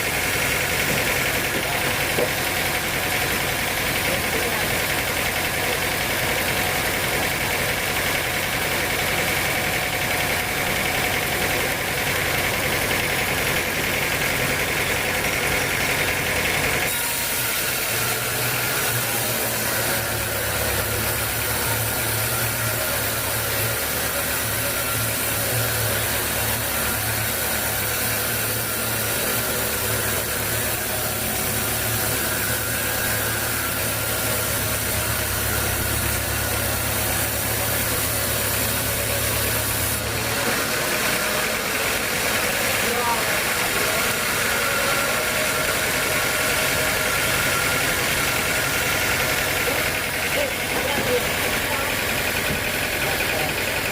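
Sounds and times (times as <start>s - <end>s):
sawmill machinery engine hum: 0.0s - 53.9s.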